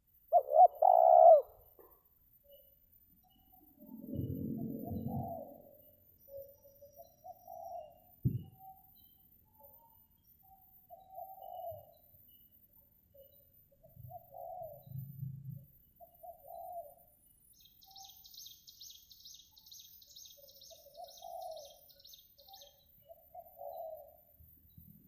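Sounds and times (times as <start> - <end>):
dove cooing: 0.3 - 2.0, 4.1 - 8.8, 10.9 - 12.0, 13.8 - 15.4, 16.0 - 17.1, 20.7 - 21.9, 23.0 - 24.3.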